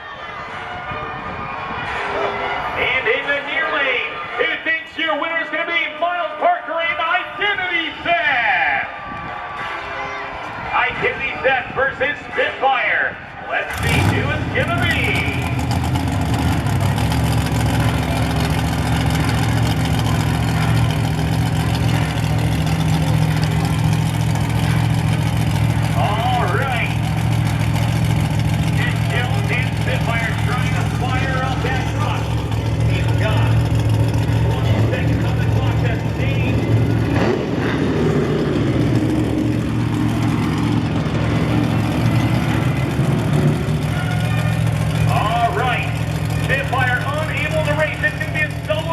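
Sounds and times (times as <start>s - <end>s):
truck engine idling: 13.1s - 48.9s.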